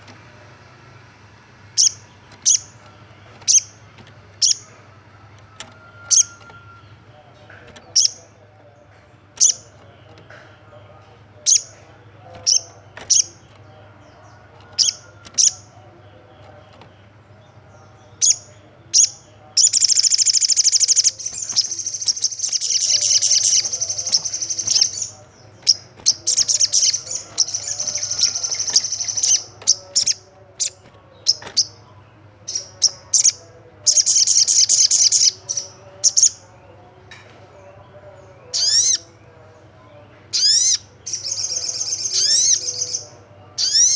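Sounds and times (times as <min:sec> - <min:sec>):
sunbird sharp high chirps: 0:18.2 - 0:25.1.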